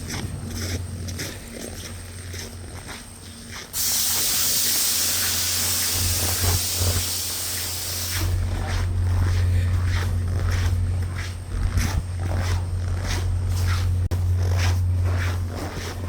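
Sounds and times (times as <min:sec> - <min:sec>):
steady low hum: 0:00.0 - 0:16.0
compressed air hissing: 0:03.7 - 0:08.4.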